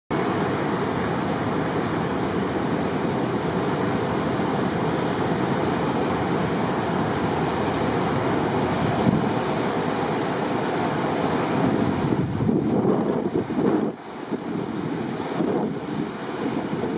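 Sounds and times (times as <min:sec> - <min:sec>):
heavy surf roaring: 0:00.1 - 0:16.9
wind buffeting microphone: 0:04.6 - 0:16.9.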